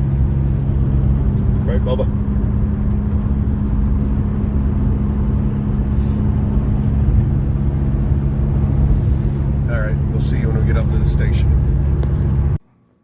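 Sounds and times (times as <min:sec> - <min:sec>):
road rumble: 0:00.0 - 0:12.9
vehicle engine drone: 0:00.0 - 0:13.0
brief hiss: 0:05.9 - 0:06.3.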